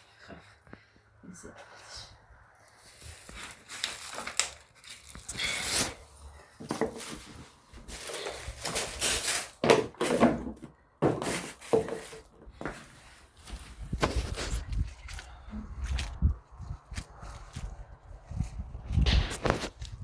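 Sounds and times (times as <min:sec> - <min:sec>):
rubbing or scraping noises: 0:02.6 - 0:20.0
knocks and thumps of handling: 0:06.6 - 0:14.8.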